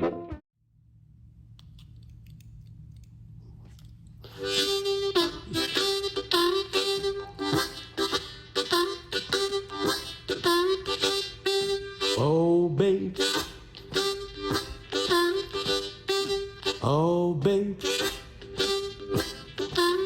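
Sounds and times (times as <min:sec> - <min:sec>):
faint low hum: 0:00.6 - 0:08.6
harmonica playing blues riff: 0:04.3 - 0:20.0.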